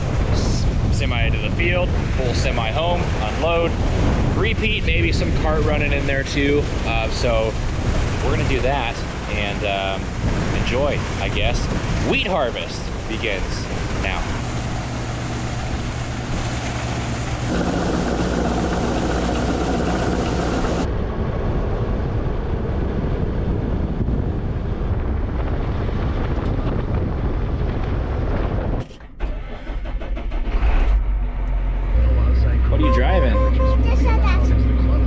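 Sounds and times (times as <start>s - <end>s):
diesel engine running: 13.6s - 20.9s.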